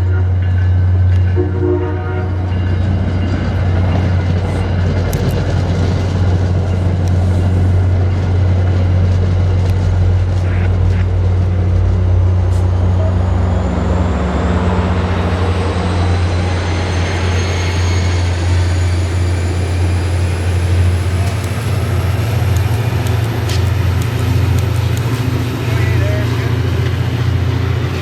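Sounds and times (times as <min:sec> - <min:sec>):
train engine drone: 0:00.0 - 0:28.0
train running noise: 0:00.0 - 0:28.0
high whine rising in pitch: 0:11.2 - 0:23.2.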